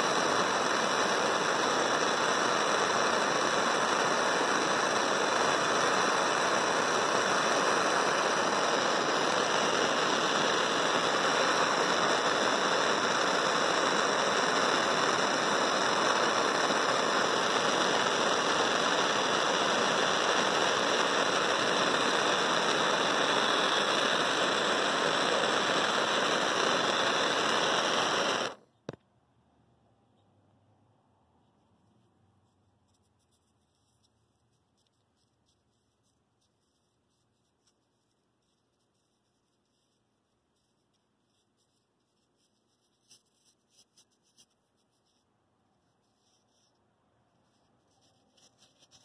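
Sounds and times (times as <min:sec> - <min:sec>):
gas torch flame hissing: 0:00.0 - 0:28.6.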